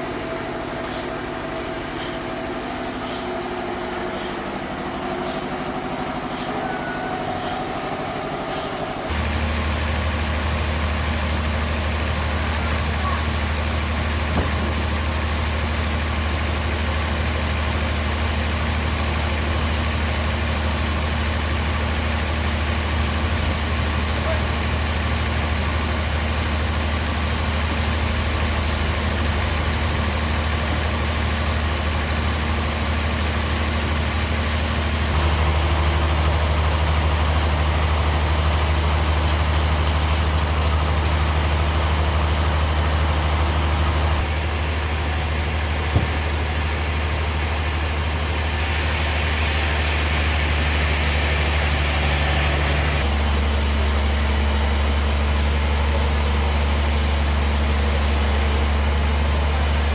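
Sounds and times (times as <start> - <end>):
bandsaw humming: 0.6 - 9.9.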